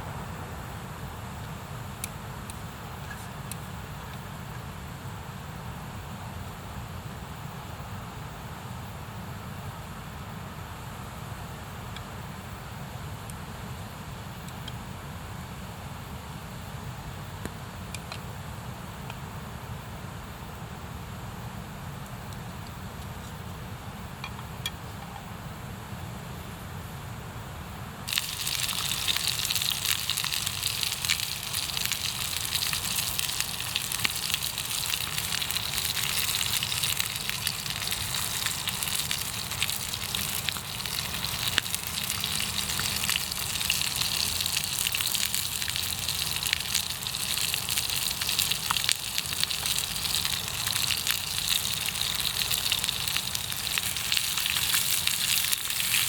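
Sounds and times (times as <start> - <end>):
campfire sizzling and crackling: 28.1 - 56.0.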